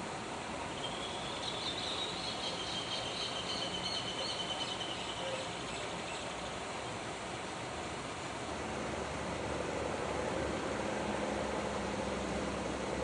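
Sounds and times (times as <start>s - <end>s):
steady background hiss: 0.0s - 13.0s
bird trilling call: 0.8s - 6.2s.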